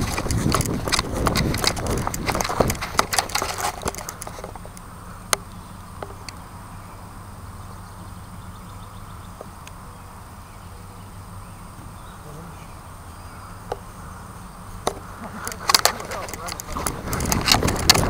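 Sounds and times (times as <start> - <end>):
knocks and rustles of handling gear: 0.0 - 4.8, 14.9 - 18.0.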